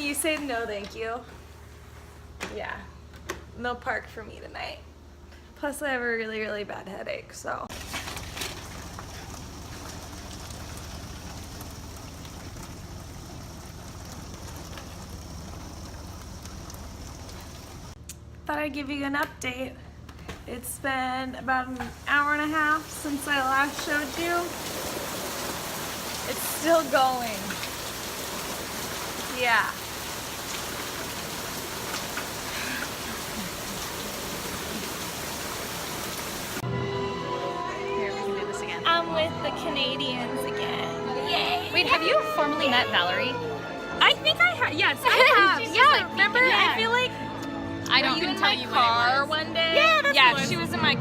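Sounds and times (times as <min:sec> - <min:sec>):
rain falling: 0:07.7 - 0:18.0, 0:21.6 - 0:36.6
raindrop ticks: 0:08.1 - 0:18.2, 0:22.8 - 0:36.2.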